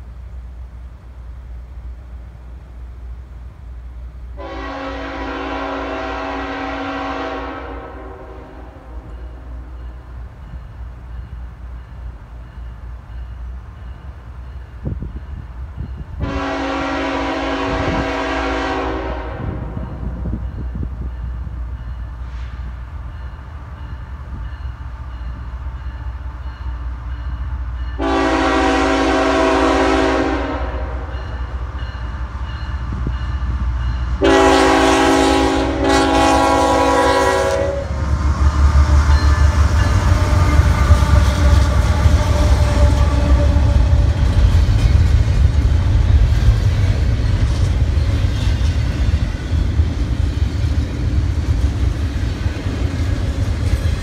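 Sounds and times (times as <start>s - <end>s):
train rumbling past: 0.0s - 54.0s
train air horn blasts: 4.4s - 9.7s, 16.2s - 20.4s, 22.2s - 22.8s, 27.8s - 31.5s, 32.9s - 44.6s
wheels clattering on rails: 38.4s - 54.0s.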